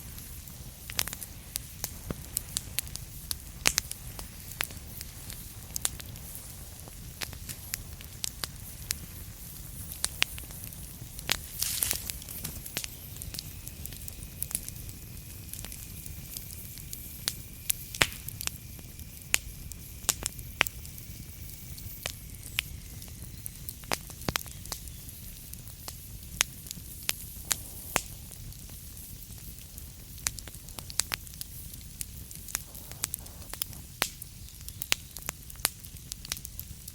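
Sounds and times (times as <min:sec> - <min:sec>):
hissing flare: 0:00.0 - 0:36.4
wood fire crackling and popping: 0:00.0 - 0:36.9
faint high whistle: 0:21.0 - 0:23.8.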